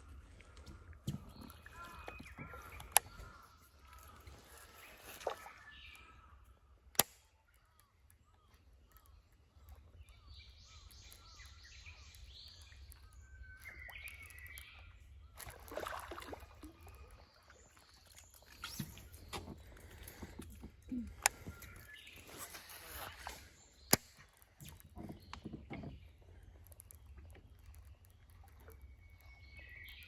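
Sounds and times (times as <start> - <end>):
birds chirping: 0.0 - 6.8, 16.6 - 30.0
sharp click: 6.9 - 7.3.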